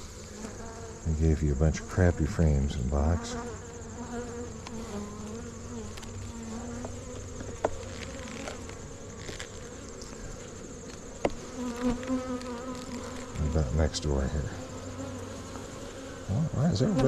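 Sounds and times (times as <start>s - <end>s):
honey bees buzzing: 0.0s - 17.0s.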